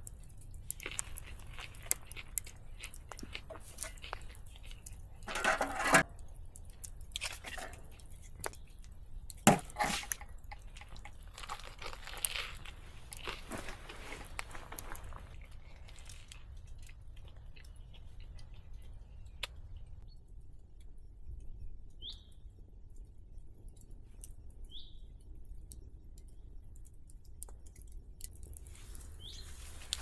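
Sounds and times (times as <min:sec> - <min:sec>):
faint clicks and crackles: 0:00.0 - 0:09.5, 0:10.1 - 0:30.0.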